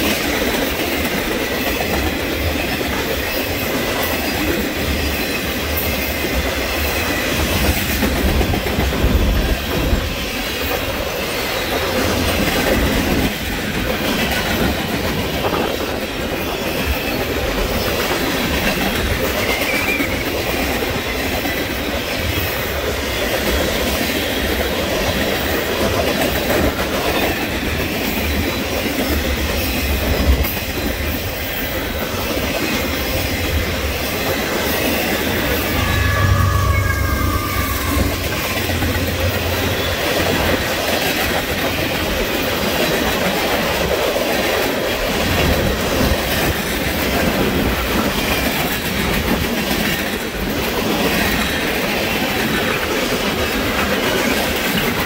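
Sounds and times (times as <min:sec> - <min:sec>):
freight train wheels rumbling: 0:00.0 - 0:55.0
high wheel squeal: 0:19.2 - 0:20.4, 0:34.8 - 0:40.7.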